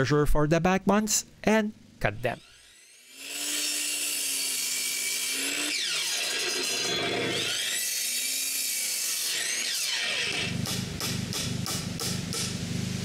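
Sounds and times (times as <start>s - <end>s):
electric power saw cutting wood: 2.4s - 12.8s.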